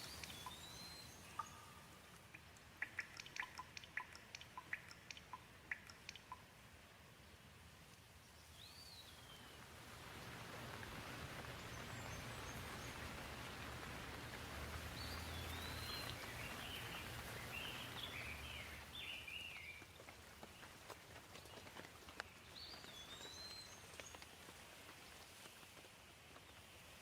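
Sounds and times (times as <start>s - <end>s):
bird chirping: 0.0s - 6.5s, 8.4s - 9.6s, 14.7s - 20.7s, 21.4s - 24.2s
gentle rain falling: 0.0s - 27.0s.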